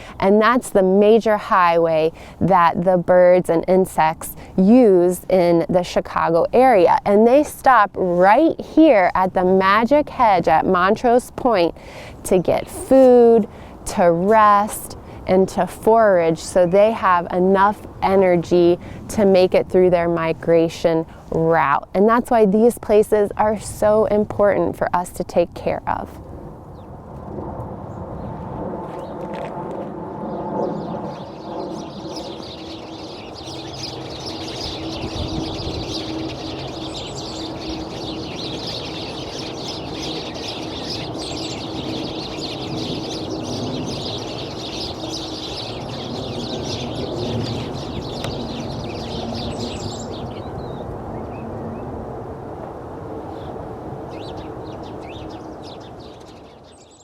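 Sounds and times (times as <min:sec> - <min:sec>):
birds chirping in chorus: 0:00.0 - 0:07.6, 0:08.2 - 0:19.0, 0:30.2 - 0:51.9, 0:53.2 - 0:57.0
low rumble: 0:26.3 - 0:38.4.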